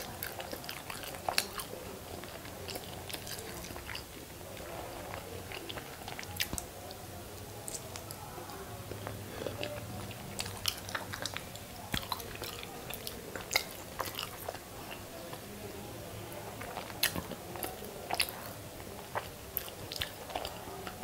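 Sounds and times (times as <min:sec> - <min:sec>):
biting and chewing food: 0:00.0 - 0:15.5, 0:16.3 - 0:21.0
mouth clicks and smacks: 0:05.0 - 0:07.0, 0:07.6 - 0:08.2, 0:08.9 - 0:15.4, 0:16.6 - 0:21.0.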